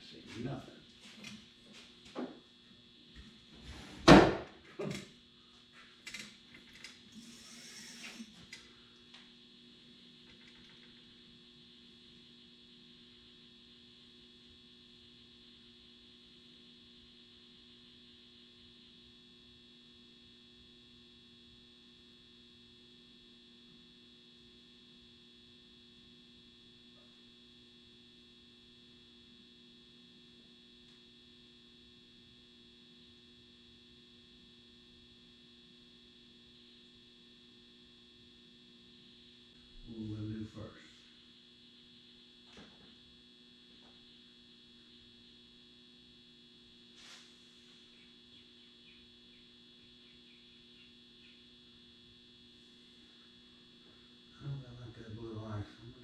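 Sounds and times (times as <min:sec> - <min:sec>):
faint electrical hum: 0:00.0 - 0:56.0.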